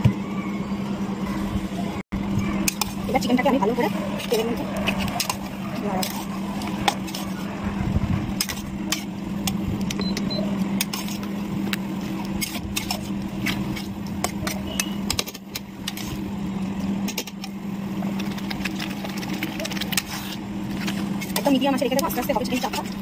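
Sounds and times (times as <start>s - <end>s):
low hum: 0.0s - 23.0s
chicken frying in oil: 10.9s - 23.0s.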